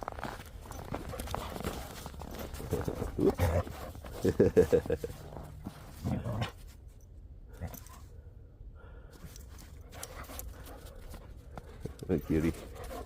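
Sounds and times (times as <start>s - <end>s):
dog panting softly: 9.8s - 13.0s.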